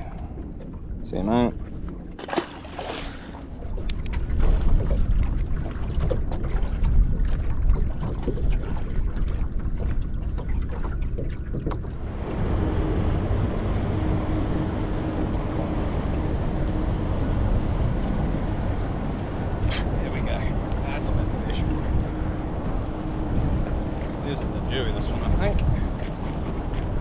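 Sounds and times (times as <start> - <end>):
water slapping boat hull: 0.0 - 27.0
wind buffeting microphone: 0.0 - 27.0
fish splashing into water: 2.2 - 3.6.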